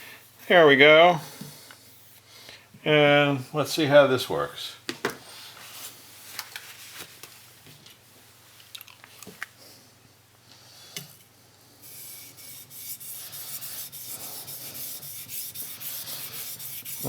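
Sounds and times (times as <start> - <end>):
rubbing on a wet sharpening stone: 11.9 - 17.0.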